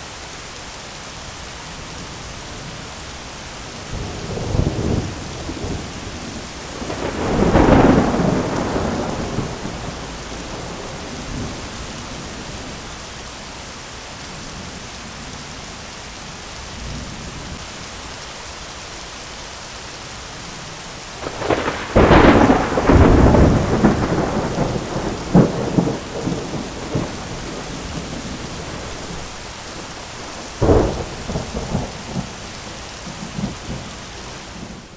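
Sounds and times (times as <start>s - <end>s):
steady rain: 0.0s - 34.9s
thunder peals: 4.0s - 12.1s, 21.2s - 29.3s, 30.2s - 32.4s.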